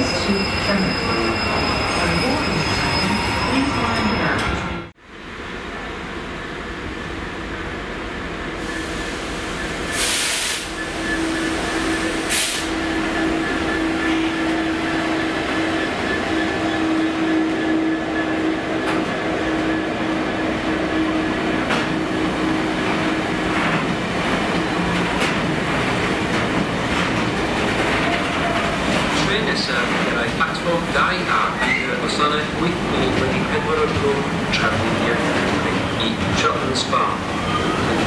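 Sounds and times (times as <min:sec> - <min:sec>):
diesel locomotive engine: 0:00.0 - 0:38.0.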